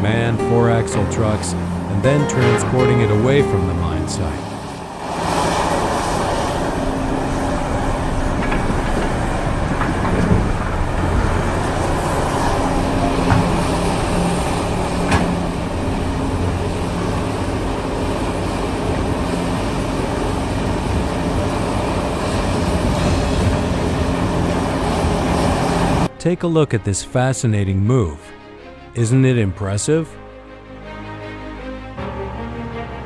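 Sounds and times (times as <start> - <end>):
sharp metallic knocks: 22.9 - 26.1.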